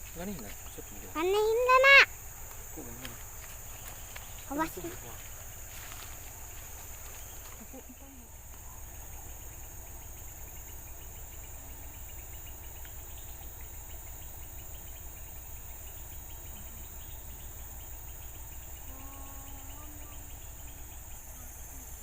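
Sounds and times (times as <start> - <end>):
insects calling: 0.0 - 22.0
low pulsing hum: 0.0 - 22.0.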